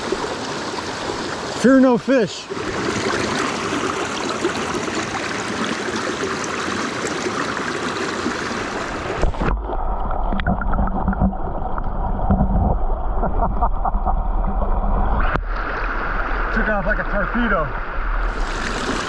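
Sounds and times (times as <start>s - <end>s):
rushing stream water: 0.0s - 13.2s, 13.8s - 19.0s
muffled underwater bubbling: 8.6s - 15.5s.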